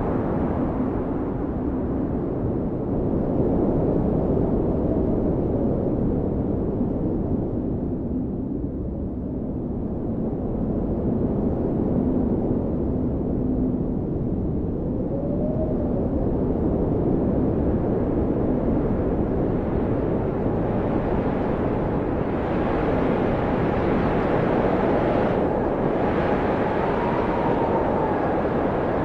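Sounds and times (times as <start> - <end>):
blizzard wind roaring: 0.0 - 29.0.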